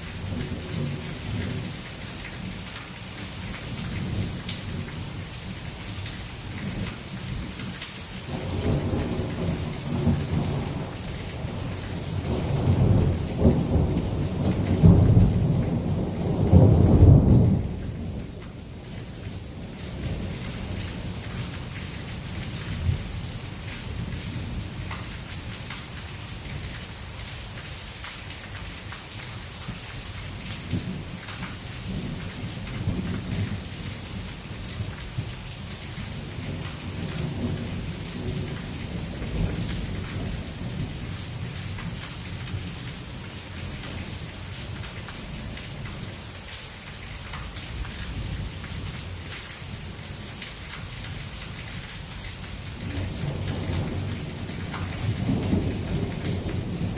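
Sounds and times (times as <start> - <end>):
heavy rain pouring: 0.0 - 56.9
low thunder rumbling: 8.3 - 18.6, 52.8 - 56.9.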